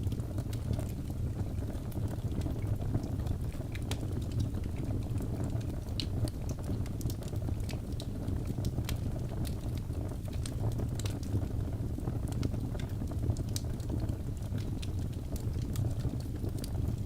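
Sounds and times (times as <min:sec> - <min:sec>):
logs burning in a fireplace: 0:00.0 - 0:17.0.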